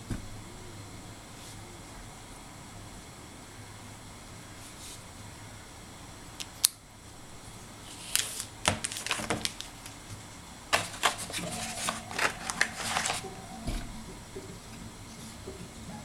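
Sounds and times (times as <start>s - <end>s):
packaging clicks and rustles: 7.9s - 13.6s.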